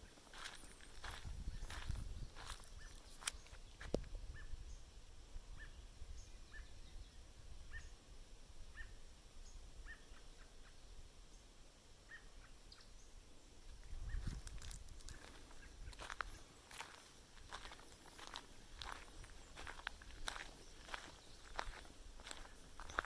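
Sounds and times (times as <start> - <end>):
low wind rumble: 0.0 - 2.8.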